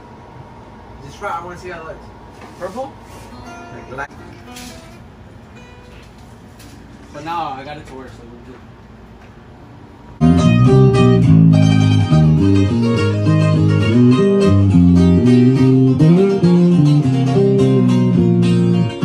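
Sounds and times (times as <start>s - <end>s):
guitar music: 3.3s - 6.6s, 10.2s - 19.0s.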